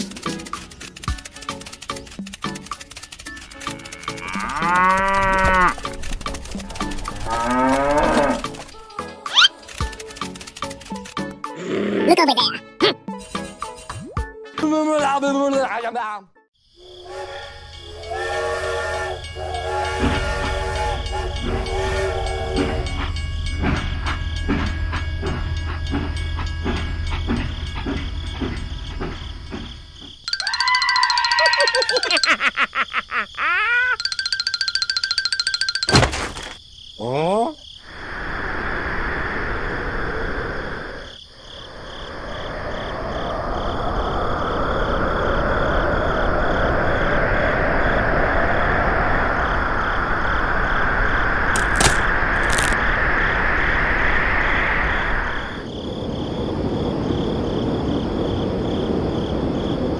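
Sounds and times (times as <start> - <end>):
steady rushing background noise: 0.0 - 4.5, 5.8 - 7.3
steam train whistle: 16.8 - 23.2
steam train chuffing: 16.8 - 29.8
frogs chirping: 23.0 - 36.0, 36.6 - 47.0.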